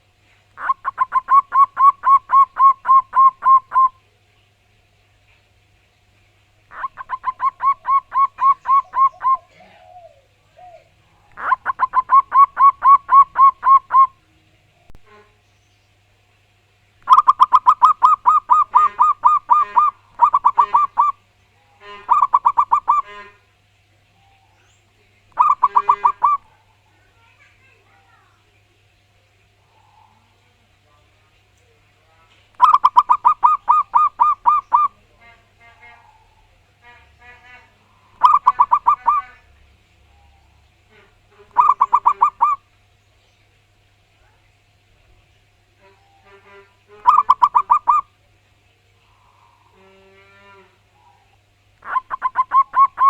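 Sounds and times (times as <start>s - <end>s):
dove cooing: 0.6s - 4.0s, 6.7s - 14.2s, 17.0s - 21.2s, 21.8s - 23.4s, 25.3s - 26.8s, 32.6s - 35.2s, 38.0s - 39.5s, 40.1s - 42.7s, 46.9s - 48.1s, 50.9s - 53.0s.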